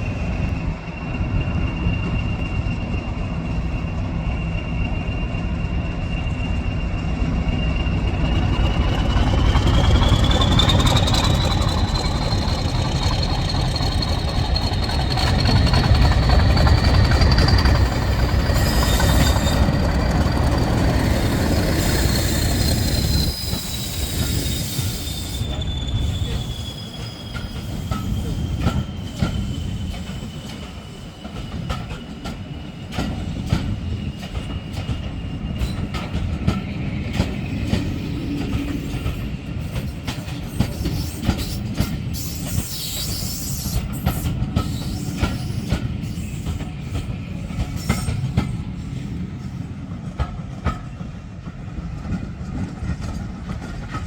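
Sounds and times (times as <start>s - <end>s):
diesel locomotive engine rumble: 0.0s - 54.0s
train on rails: 0.0s - 54.0s.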